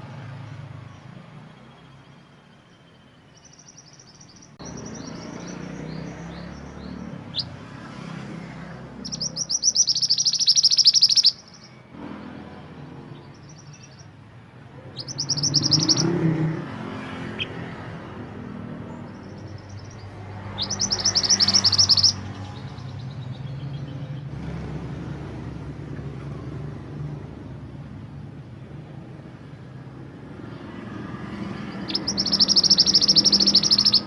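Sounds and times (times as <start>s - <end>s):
songbird trilling: 1.7s - 7.6s, 8.9s - 11.8s, 13.2s - 14.2s, 14.9s - 16.4s, 18.8s - 24.2s, 31.6s - 34.0s.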